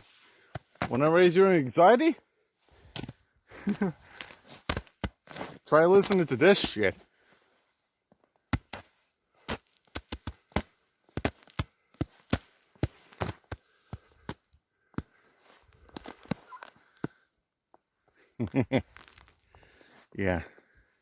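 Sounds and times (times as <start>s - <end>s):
river ice cracking underfoot: 18.8s - 19.4s.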